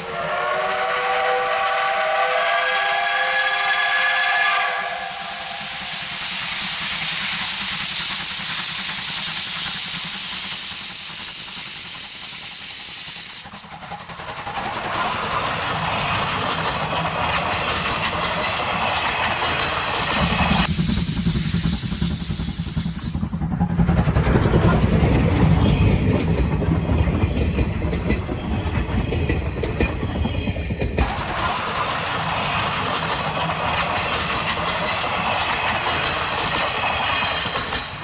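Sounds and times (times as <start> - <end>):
steam whistle: 0.0 - 6.4
loud hiss of escaping steam: 0.0 - 23.4
locomotive running: 0.0 - 38.0.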